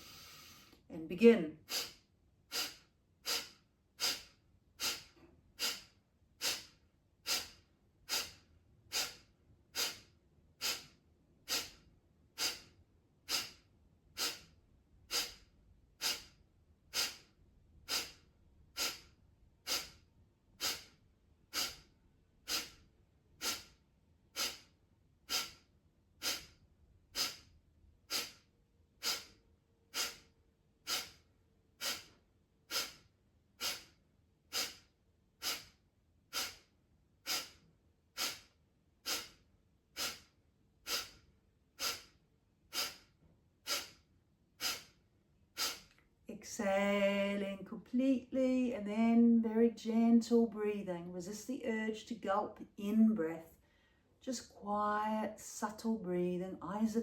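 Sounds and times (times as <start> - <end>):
forceful nasal exhalations: 0.0 - 0.8, 1.6 - 11.8, 12.4 - 27.5, 28.1 - 46.0.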